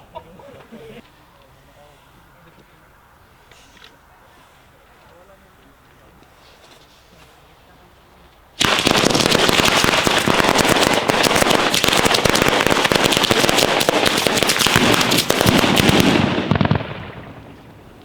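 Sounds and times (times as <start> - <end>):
firecrackers going off: 8.6 - 18.0.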